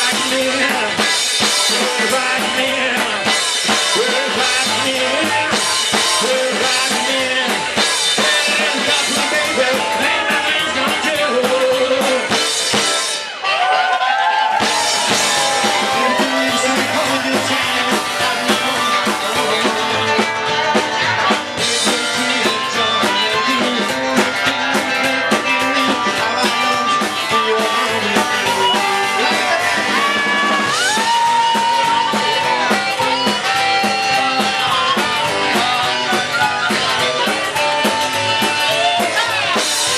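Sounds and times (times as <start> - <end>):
rock band playing live: 0.0 - 39.9
guitar lead line bending pitch: 14.6 - 39.9.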